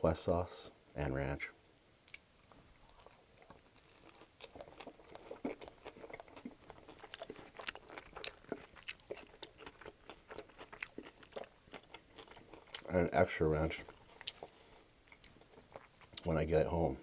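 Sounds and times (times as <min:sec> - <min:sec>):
crunchy chewing: 0:02.1 - 0:16.5
biting into sandwich: 0:02.8 - 0:12.9.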